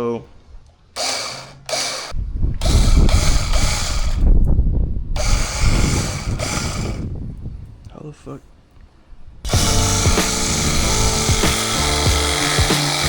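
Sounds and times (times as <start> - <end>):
power tool running: 1.0 - 4.2, 5.2 - 7.1, 9.5 - 13.0.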